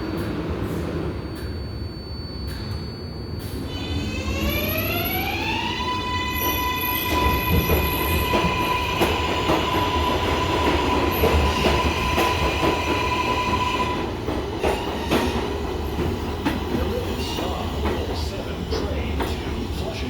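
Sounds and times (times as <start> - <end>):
train rumble: 6.4 - 20.0.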